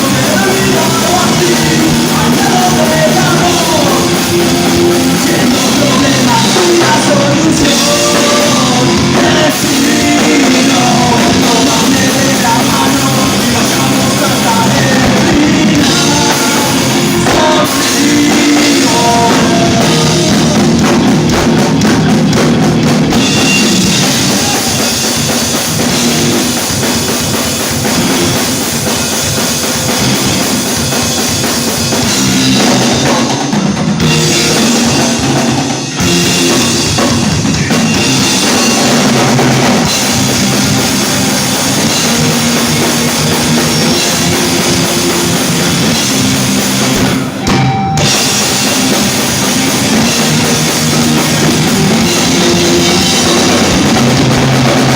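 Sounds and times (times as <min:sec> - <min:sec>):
loud driving drum kit: 0:00.0 - 0:54.9
rock band playing live: 0:00.0 - 0:54.9.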